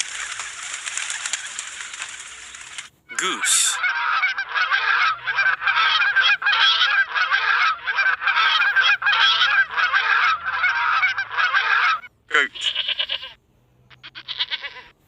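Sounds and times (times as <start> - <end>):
geese honking: 0.0 - 14.9.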